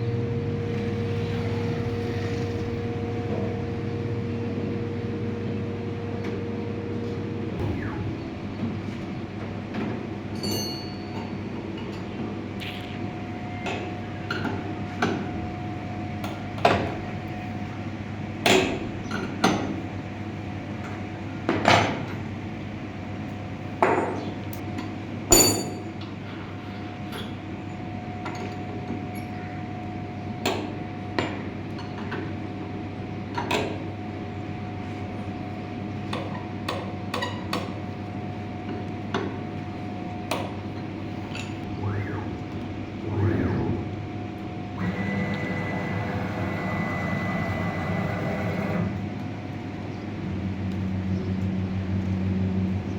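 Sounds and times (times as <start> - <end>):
cnc router hum and whine: 0.0 - 10.2, 38.2 - 52.9
ringing metallic clink: 10.4 - 11.3, 25.3 - 25.9.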